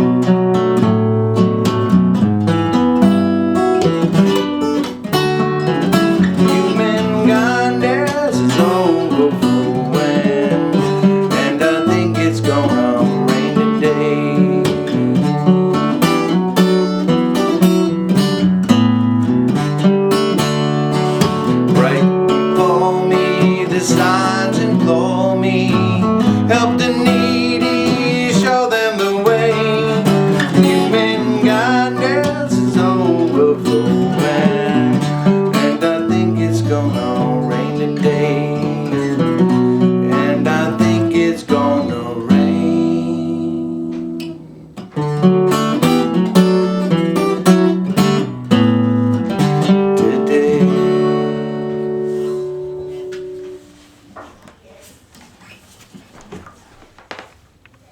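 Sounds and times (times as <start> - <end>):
acoustic guitar strumming chords: 0.0 - 54.1
person singing: 5.2 - 17.0, 21.1 - 44.6, 49.3 - 53.1.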